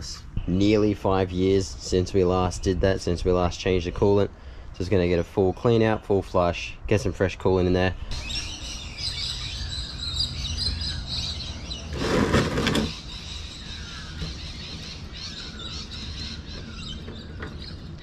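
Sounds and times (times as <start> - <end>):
small birds chirping: 7.9 - 18.0.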